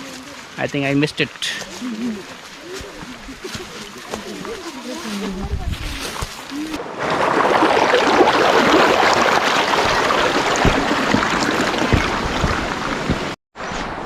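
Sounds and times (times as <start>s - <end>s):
river water rushing over rocks: 7.1s - 13.3s
low thuds: 10.0s - 13.4s.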